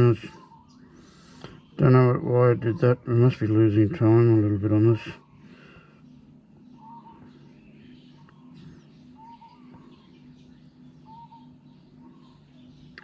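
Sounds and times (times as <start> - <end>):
low hum: 0.0 - 13.0
faint whistled bird calls: 0.2 - 1.8, 6.1 - 13.0.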